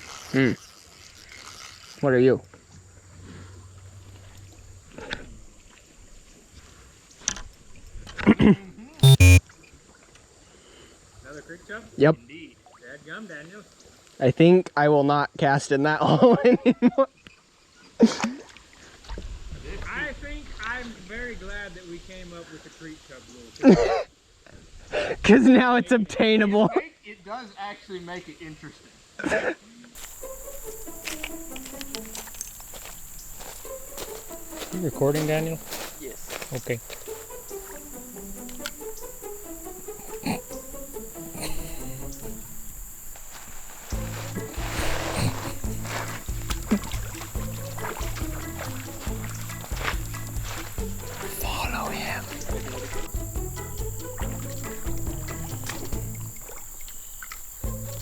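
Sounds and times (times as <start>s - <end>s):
creek water splashing: 30.0s - 58.0s
high-pitched insect drone: 30.0s - 58.0s.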